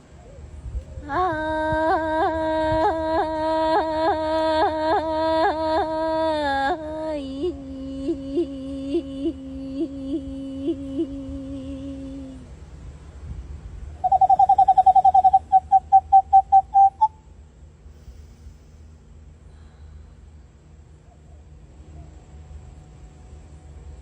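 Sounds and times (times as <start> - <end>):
woman imitating bird call: 14.0 - 17.1.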